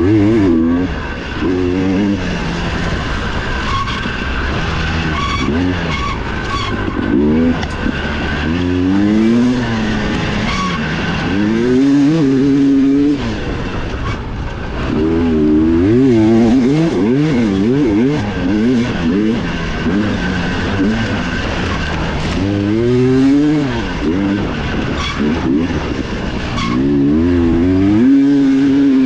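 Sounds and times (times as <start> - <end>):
dirt bike engine revving: 6.9 - 13.6.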